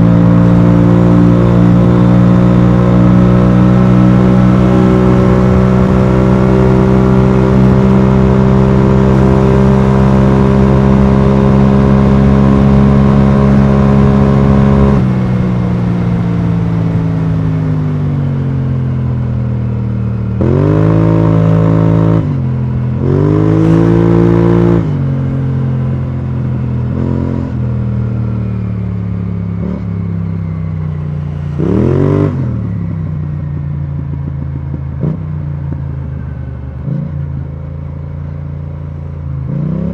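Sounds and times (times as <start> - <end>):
scooter engine revving: 0.0 - 16.7.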